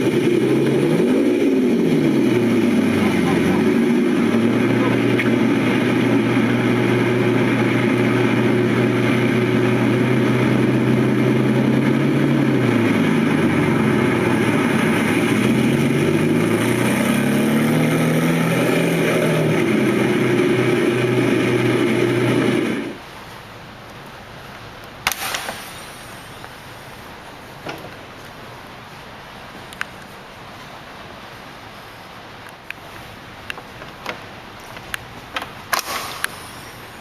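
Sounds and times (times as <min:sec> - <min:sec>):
engine idling: 0:00.0 - 0:17.9, 0:19.0 - 0:37.0.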